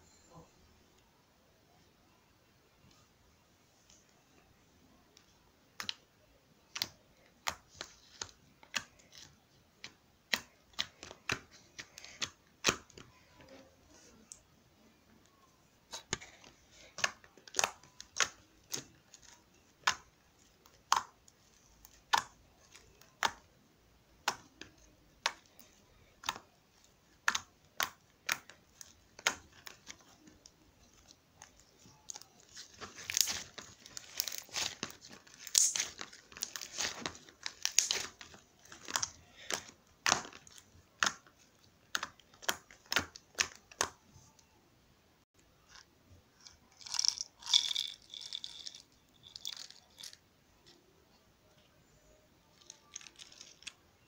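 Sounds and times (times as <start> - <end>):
crinkling: 24.2 - 44.5, 45.4 - 50.8, 51.6 - 54.0.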